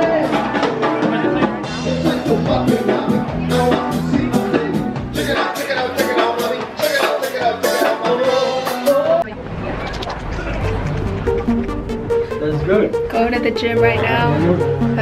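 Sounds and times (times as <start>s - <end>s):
person singing: 0.0s - 9.4s
upbeat pop song: 0.0s - 9.4s, 12.1s - 15.0s.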